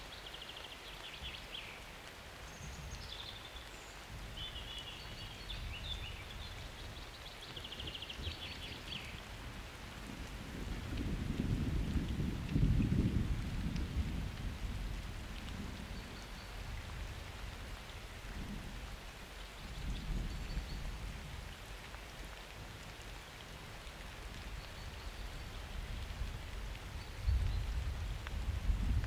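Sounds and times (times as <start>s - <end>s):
steady rain falling: 0.0s - 29.0s
thunder rumbling: 10.0s - 16.0s.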